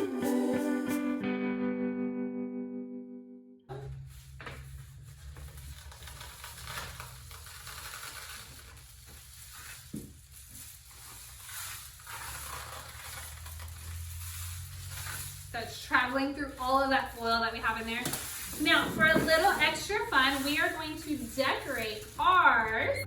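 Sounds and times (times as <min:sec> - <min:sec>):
rain stick rushing patter: 0:10.5 - 0:22.9.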